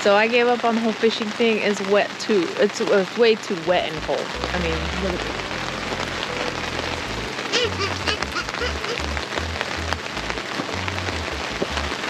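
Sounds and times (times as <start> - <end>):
heavy rain falling: 0.0 - 12.0
high chirps: 5.2 - 9.9.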